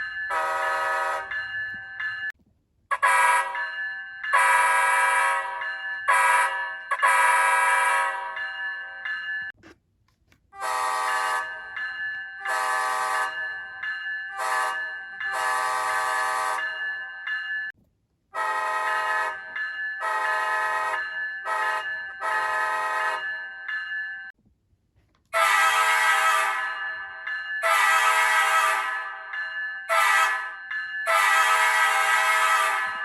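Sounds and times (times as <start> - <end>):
locomotive air horns: 0.3 - 1.4, 2.9 - 3.6, 4.4 - 8.4, 10.6 - 11.7, 12.4 - 13.5, 14.3 - 16.6, 18.3 - 23.2, 25.3 - 26.8, 27.6 - 29.2, 29.9 - 33.0.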